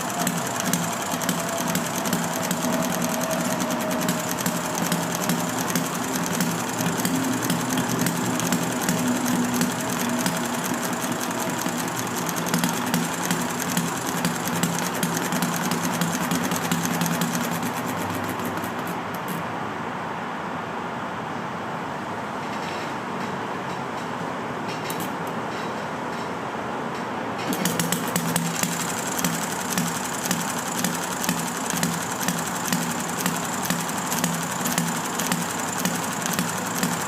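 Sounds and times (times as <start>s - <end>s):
model engine clattering: 0.0s - 19.4s, 27.5s - 37.0s.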